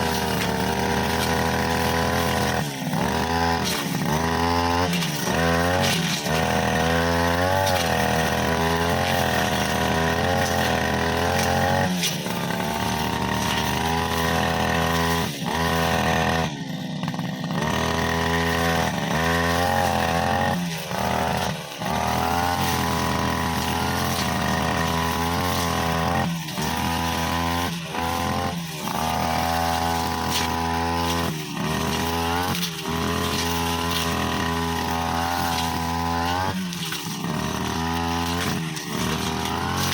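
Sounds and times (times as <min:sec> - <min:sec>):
brushcutter cutting grass: 0:00.0 - 0:39.9.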